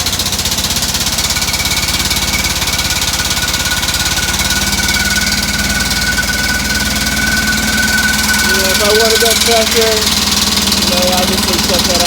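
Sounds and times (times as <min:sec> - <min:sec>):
air compressor engine running: 0:00.0 - 0:12.0
compressed air hissing whistle: 0:00.0 - 0:12.0.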